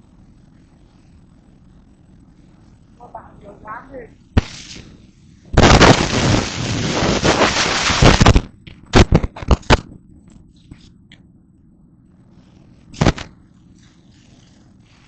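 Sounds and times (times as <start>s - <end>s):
short overload blasts: 5.6s - 9.8s.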